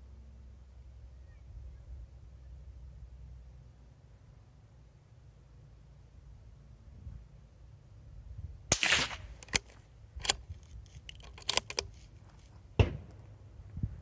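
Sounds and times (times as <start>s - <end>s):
suppressed rifle shots: 8.7s - 10.4s
rifle bolt clicking: 8.7s - 12.1s.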